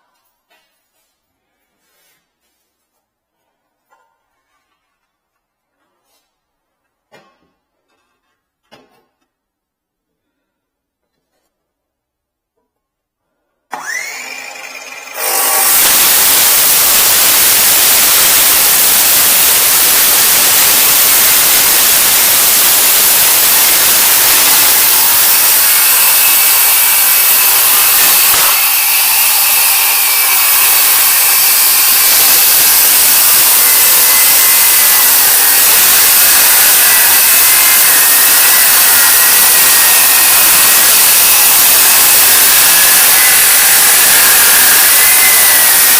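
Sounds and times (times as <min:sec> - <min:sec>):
power tool motor whining: 0:13.7 - 0:45.9.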